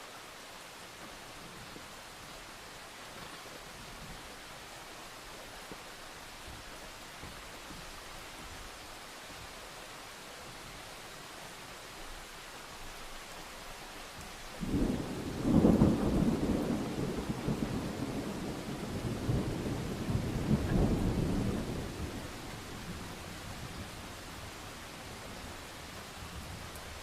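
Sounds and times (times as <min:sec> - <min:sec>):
rain hissing: 0:00.0 - 0:27.0
thunder rolling: 0:14.6 - 0:24.1.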